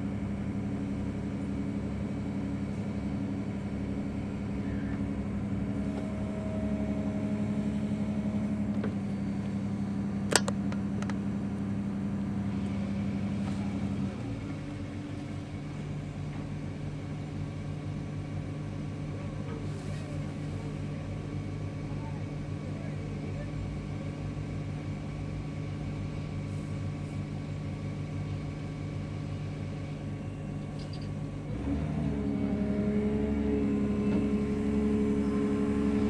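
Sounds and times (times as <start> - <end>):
diesel engine running: 0.0 - 16.4
sharp metallic click: 10.3 - 11.2.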